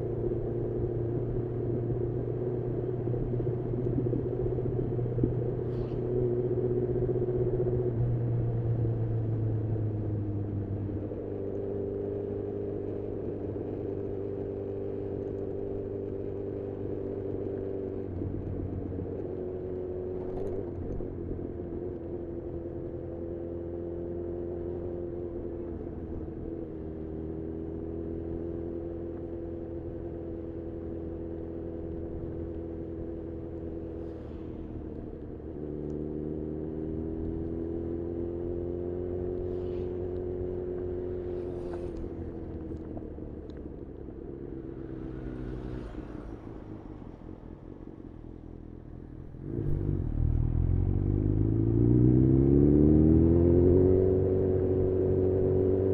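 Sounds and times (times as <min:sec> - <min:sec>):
motorcycle engine running: 0:48.0 - 0:51.8.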